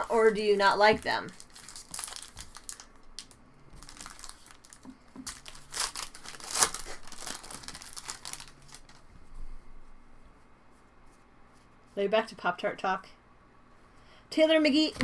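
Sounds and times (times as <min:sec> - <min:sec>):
wrappers crinkling and tearing: 0:00.0 - 0:09.1.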